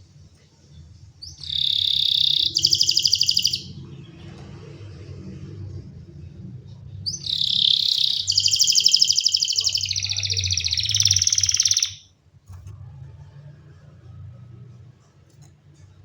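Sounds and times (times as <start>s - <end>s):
canary singing: 1.2s - 4.4s, 7.0s - 12.1s.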